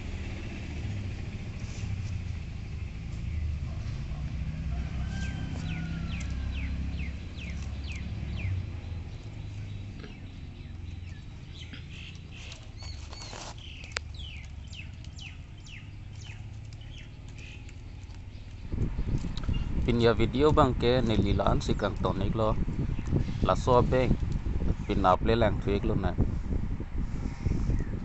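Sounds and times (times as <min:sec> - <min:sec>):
small bird chirping: 0:05.0 - 0:19.9.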